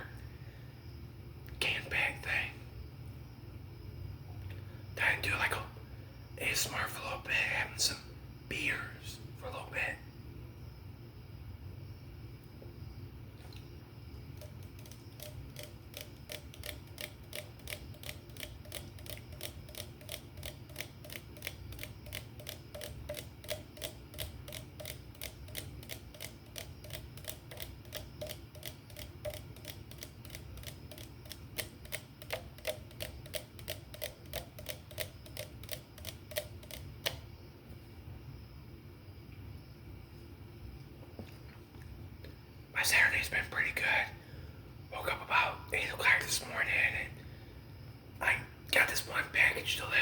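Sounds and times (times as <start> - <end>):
tapping on a beer can: 14.4 - 37.2.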